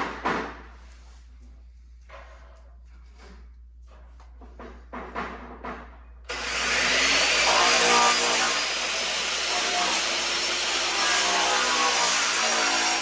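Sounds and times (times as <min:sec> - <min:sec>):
power tool running loudly: 0:06.3 - 0:13.0.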